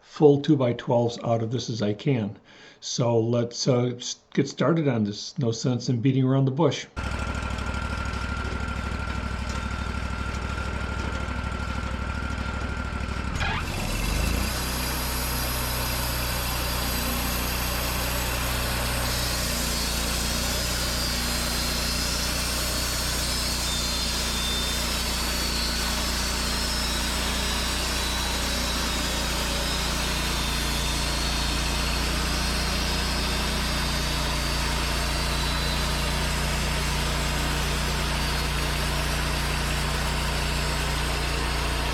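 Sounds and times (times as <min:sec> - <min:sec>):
sawmill engine revving: 0:07.0 - 0:41.9
band blade sawing through log: 0:13.3 - 0:41.9.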